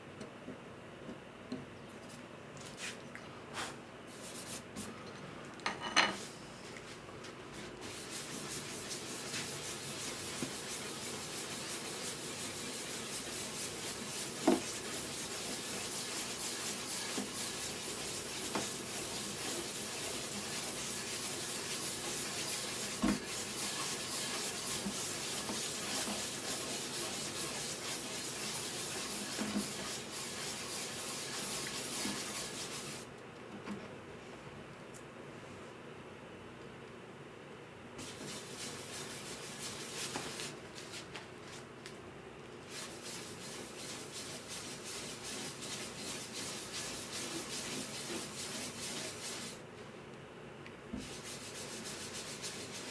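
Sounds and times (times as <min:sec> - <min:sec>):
sanding wood rasp: 0:07.9 - 0:33.0, 0:38.0 - 0:40.5, 0:42.7 - 0:49.6, 0:51.0 - 0:52.9.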